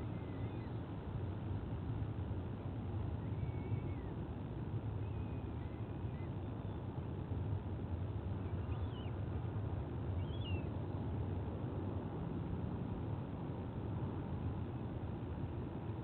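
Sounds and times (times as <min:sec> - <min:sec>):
low outdoor rumble: 0:00.0 - 0:16.0
high whistled bird calls: 0:10.2 - 0:10.6.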